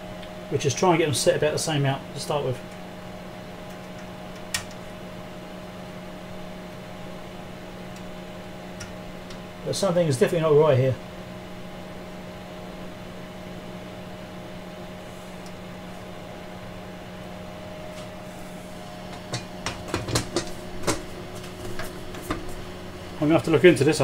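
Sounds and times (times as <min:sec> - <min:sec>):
electrical hum of equipment: 0:00.0 - 0:24.0
small sharp clicks and knocks: 0:03.7 - 0:04.8.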